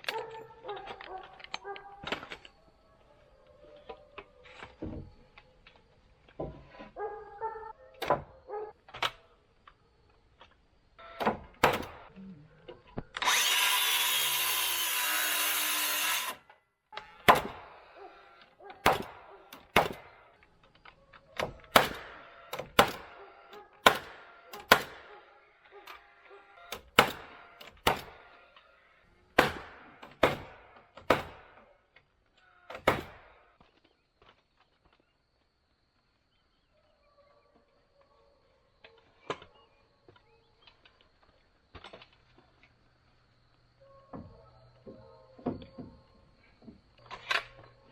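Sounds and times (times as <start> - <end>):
power saw cutting wood: 13.2 - 16.5.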